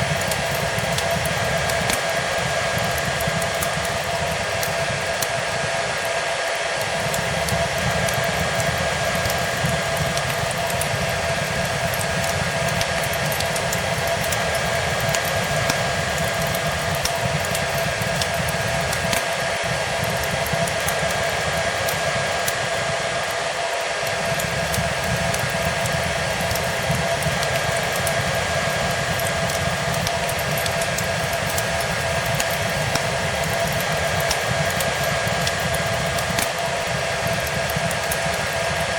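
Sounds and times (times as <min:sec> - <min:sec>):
fireplace crackling: 0:00.0 - 0:38.9
hair dryer running: 0:00.0 - 0:38.9.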